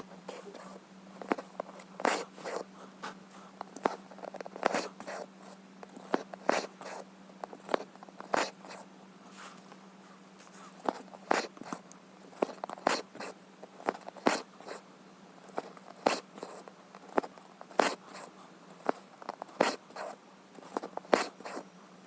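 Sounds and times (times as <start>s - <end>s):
faint steady hum: 0.0s - 22.0s
needle pricking through fabric: 6.0s - 8.9s, 10.8s - 11.8s, 12.4s - 14.8s, 15.5s - 21.7s.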